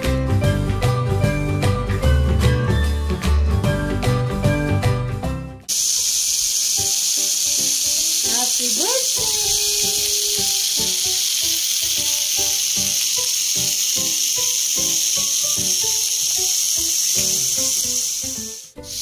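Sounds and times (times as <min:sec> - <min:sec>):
background music: 0:00.0 - 0:05.7, 0:06.3 - 0:19.0
meat sizzling on a grill: 0:05.7 - 0:19.0.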